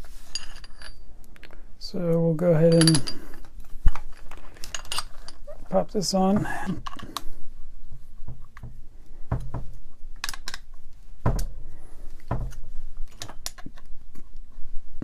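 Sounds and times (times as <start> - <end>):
clicks and knocks of parts handled: 0.3 - 5.5, 6.3 - 7.3, 10.2 - 11.6, 12.2 - 14.4.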